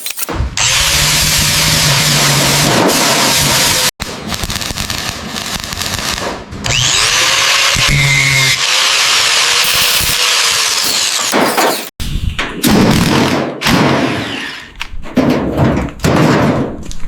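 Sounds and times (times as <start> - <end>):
power tool grinding: 6.6 - 11.9.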